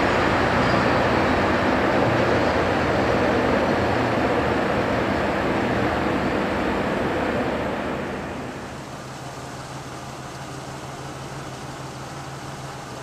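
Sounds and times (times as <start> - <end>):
freight cars rumbling on rails: 0.0 - 13.0
low engine hum: 0.0 - 13.0.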